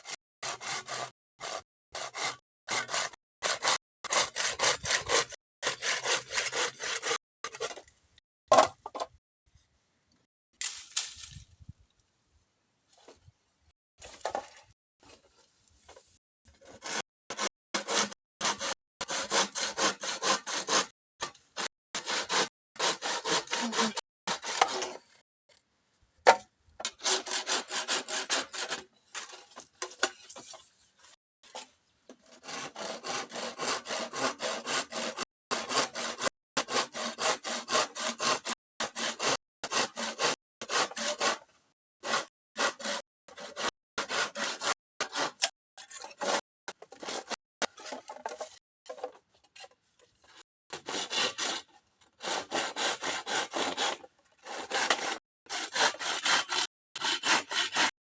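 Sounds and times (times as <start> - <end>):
hand saw cutting bamboo: 0.0 - 7.8, 16.5 - 25.2, 26.8 - 29.4, 31.5 - 49.1, 50.3 - 58.0.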